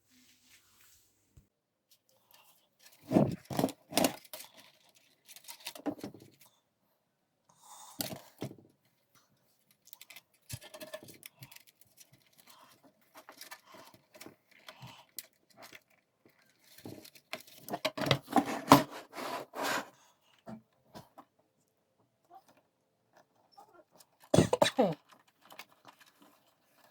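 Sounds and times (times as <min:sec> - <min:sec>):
small hard parts rattling: 0:09.6 - 0:18.6, 0:23.2 - 0:26.9.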